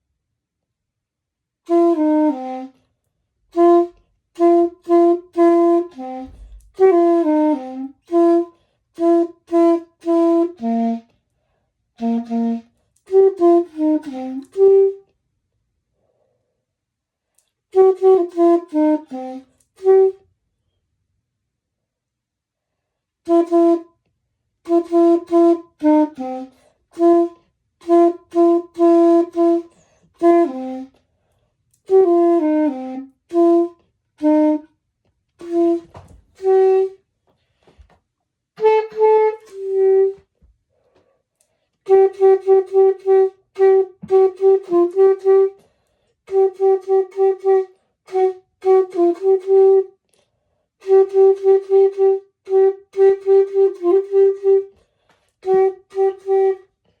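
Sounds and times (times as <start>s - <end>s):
solo clarinet melody: 1.6s - 11.2s, 12.0s - 15.2s, 17.7s - 20.4s, 23.2s - 31.1s, 31.8s - 37.1s, 38.6s - 40.4s, 41.8s - 50.0s, 50.8s - 54.8s, 55.4s - 57.0s.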